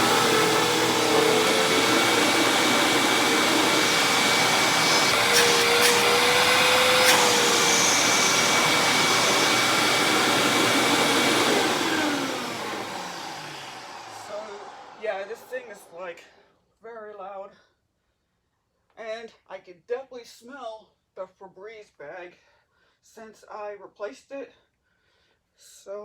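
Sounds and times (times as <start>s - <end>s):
vacuum cleaner running: 0.0s - 15.9s.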